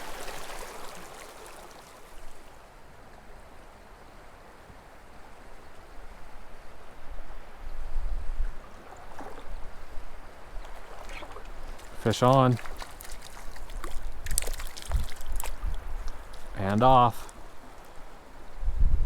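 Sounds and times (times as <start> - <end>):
creek running over rocks: 0.0 - 2.7, 8.5 - 18.6.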